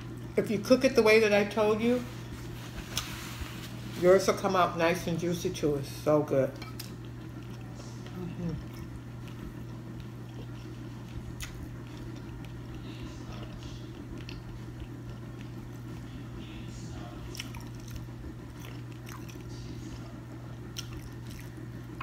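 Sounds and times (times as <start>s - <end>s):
steady low hum: 0.0s - 22.0s
chewing and mouth sounds: 6.6s - 16.2s, 17.0s - 22.0s.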